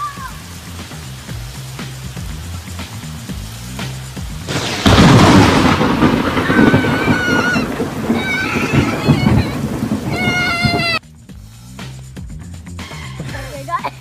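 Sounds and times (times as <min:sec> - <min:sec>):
falling rain: 0:00.0 - 0:11.7
thunder clap rumbling: 0:00.3 - 0:11.0.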